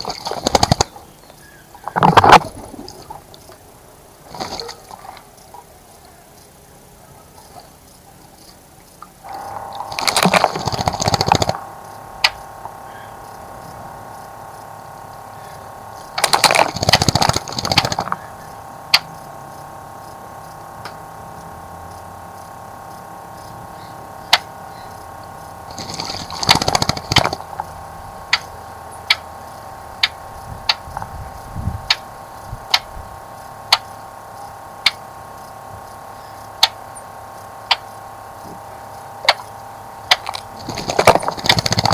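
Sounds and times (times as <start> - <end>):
bird splashing in bird bath: 0.0 - 1.1, 4.2 - 5.6, 9.4 - 11.7, 16.1 - 18.2, 25.7 - 28.4, 40.1 - 41.9
sharp ticks: 0.0 - 3.7, 7.4 - 41.9
steady machine hum: 0.0 - 41.9.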